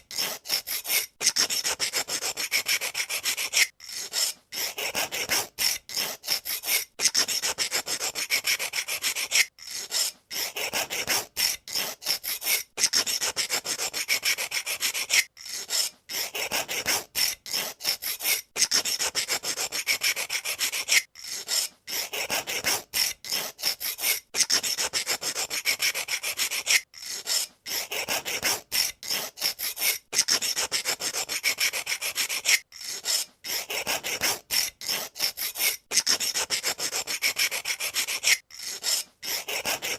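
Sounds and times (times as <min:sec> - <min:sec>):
pencil sharpener scraping wood: 0:00.0 - 0:39.9.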